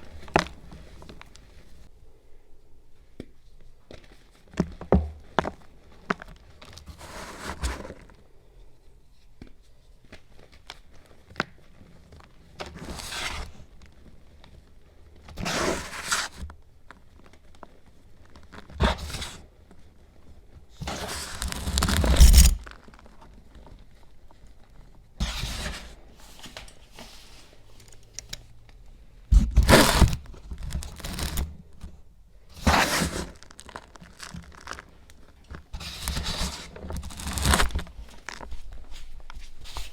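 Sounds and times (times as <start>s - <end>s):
crunching and crackling: 10.1s - 26.1s, 27.5s - 39.9s.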